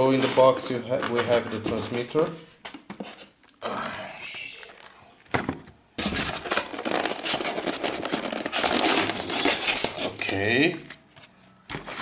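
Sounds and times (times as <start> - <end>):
foam scraping and rubbing: 6.1 - 10.3.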